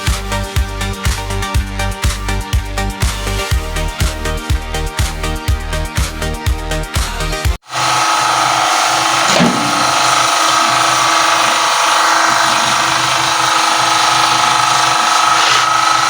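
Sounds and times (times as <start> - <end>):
microwave oven humming: 7.6 - 16.0.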